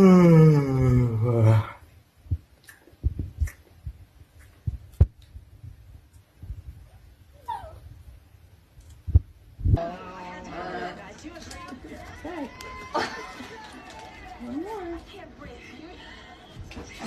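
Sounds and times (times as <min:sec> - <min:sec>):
dog whimpering: 0:07.4 - 0:07.8.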